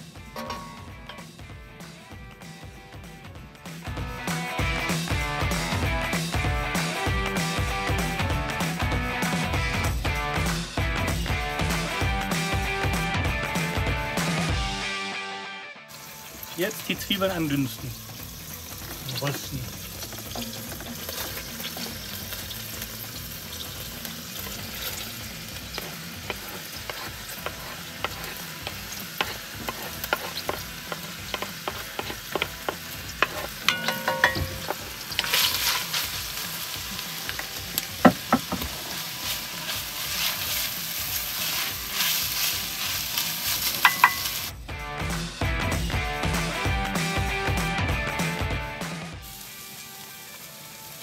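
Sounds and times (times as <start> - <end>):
meat and onions sizzling in oil: 0.0 - 14.5, 15.8 - 45.1, 45.7 - 51.0
wooden spatula scraping cutting board: 25.8 - 33.6.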